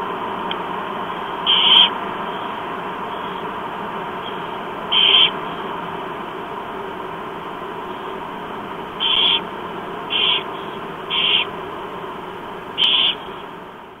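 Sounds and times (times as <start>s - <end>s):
steady hiss: 0.0s - 14.0s
owl chicks screeching: 1.4s - 3.5s, 4.2s - 5.7s, 8.9s - 11.6s, 12.7s - 13.5s.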